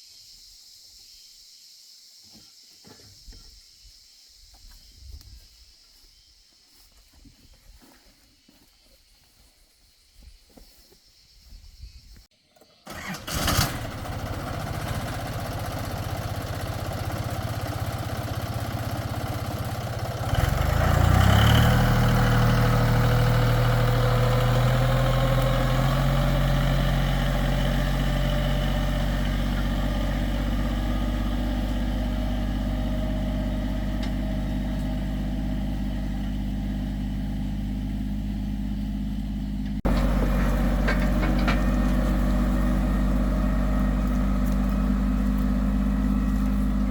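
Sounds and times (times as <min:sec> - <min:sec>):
tractor engine running: 0:12.8 - 0:46.9.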